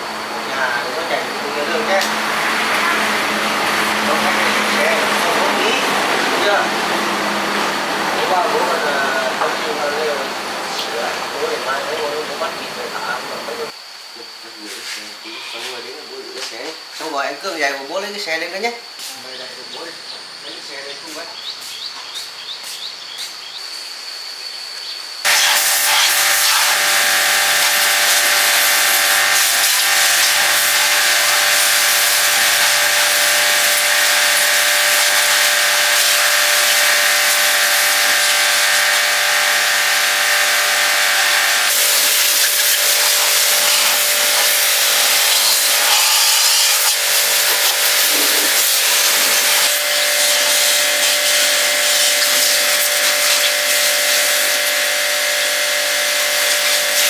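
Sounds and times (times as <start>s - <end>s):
pressure washer spraying water: 0.0s - 13.7s, 25.3s - 57.0s.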